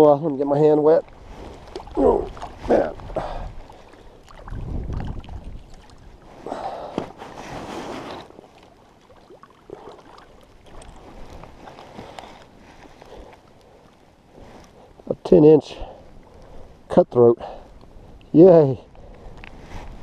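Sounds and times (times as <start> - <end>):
water splashing: 0.0 - 14.0.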